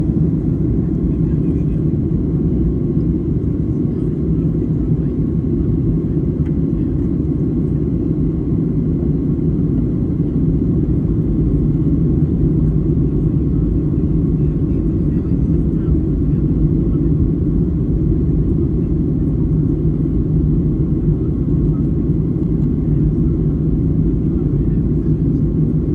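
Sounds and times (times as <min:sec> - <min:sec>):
airliner cabin rumble: 0:00.0 - 0:25.9.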